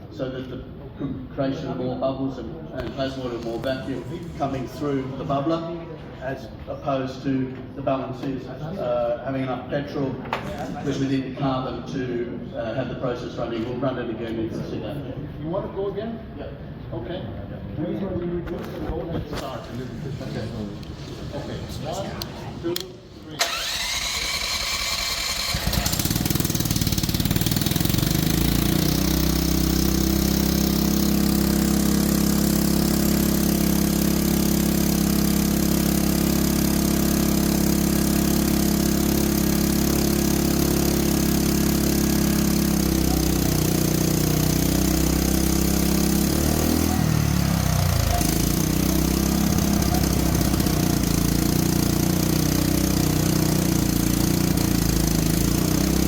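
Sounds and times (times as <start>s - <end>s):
small petrol engine running: 23.4s - 56.0s.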